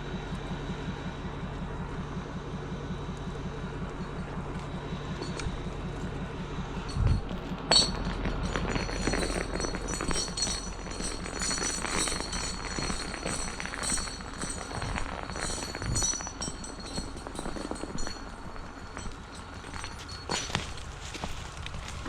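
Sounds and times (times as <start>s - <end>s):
footsteps crunching through snow: 20.0s - 22.0s.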